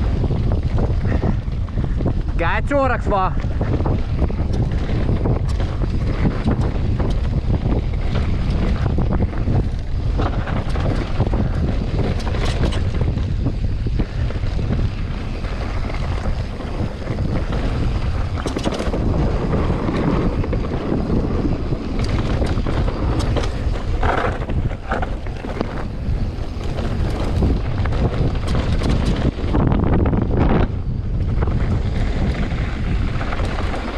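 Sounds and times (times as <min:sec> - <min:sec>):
wind buffeting microphone: 0:00.0 - 0:33.9
bike knocks and rattles: 0:03.4 - 0:29.6
tyre noise on dirt: 0:03.6 - 0:29.4.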